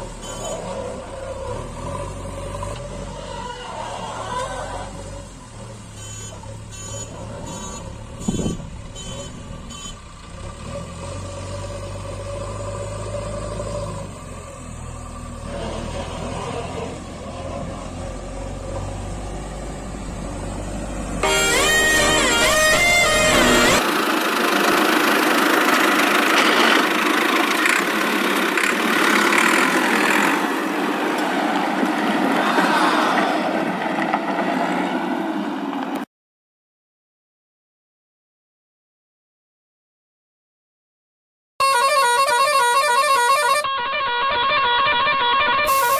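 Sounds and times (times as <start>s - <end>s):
short electronic beeps: 6.0s - 10.1s
toy tractor engine running: 21.2s - 30.5s, 41.6s - 43.7s.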